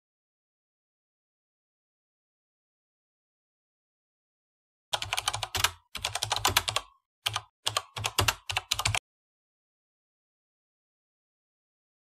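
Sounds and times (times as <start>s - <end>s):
keyboard typing clicks: 5.0s - 9.0s.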